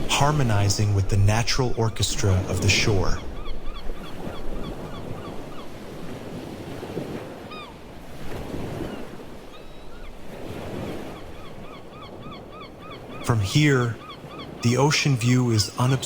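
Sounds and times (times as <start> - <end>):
ocean waves washing in: 0.0 - 16.0
bird calling repeated notes: 11.0 - 16.0.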